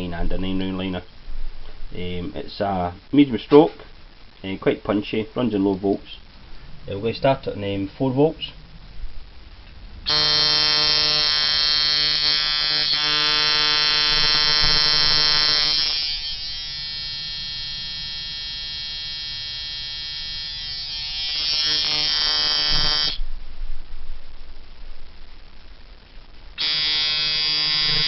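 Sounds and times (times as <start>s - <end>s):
tattoo machine buzzing: 10.1s - 23.2s, 26.6s - 28.0s.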